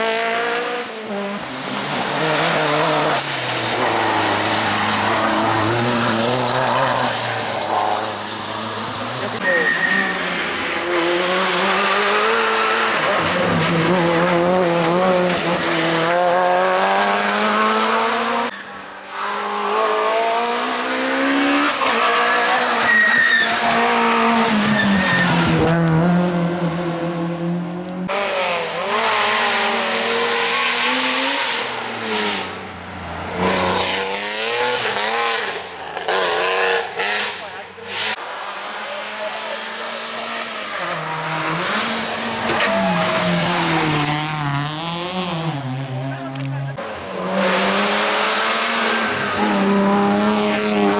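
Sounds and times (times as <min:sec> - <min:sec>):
rally car engines revving: 0:00.0 - 0:50.9
tyres squealing: 0:09.2 - 0:10.4, 0:21.8 - 0:25.5, 0:40.6 - 0:44.5.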